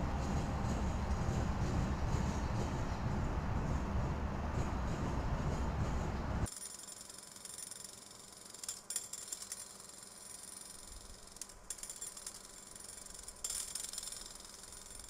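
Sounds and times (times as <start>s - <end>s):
freight train rolling past: 0.0s - 6.5s
light mechanical clicks and rattles: 6.4s - 15.0s.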